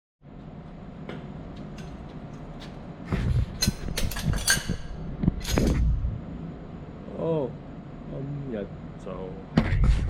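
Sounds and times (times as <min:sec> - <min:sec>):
mechanical hum: 0:00.2 - 0:10.0
metal tools clanking: 0:03.6 - 0:05.8.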